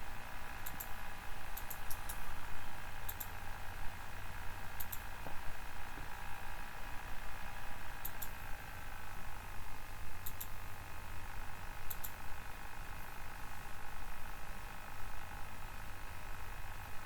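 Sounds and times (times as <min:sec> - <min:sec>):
computer hum: 0:00.0 - 0:17.0
computer mouse double-clicking: 0:00.6 - 0:01.0, 0:01.6 - 0:02.2, 0:03.1 - 0:03.3, 0:04.8 - 0:05.0, 0:08.0 - 0:08.3, 0:10.2 - 0:10.5, 0:11.9 - 0:12.2.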